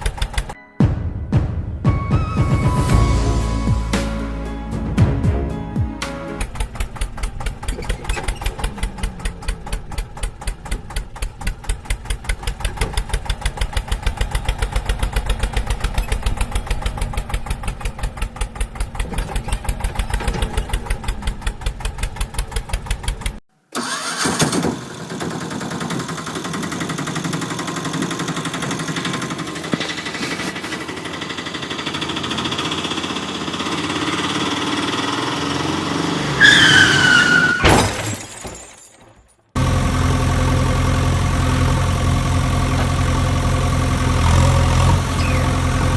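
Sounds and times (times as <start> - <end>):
steady engine with rising pitch: 6.4 - 22.6, 30.8 - 36.8, 39.6 - 45.9
engine chugging: 6.4 - 37.3, 39.6 - 45.9.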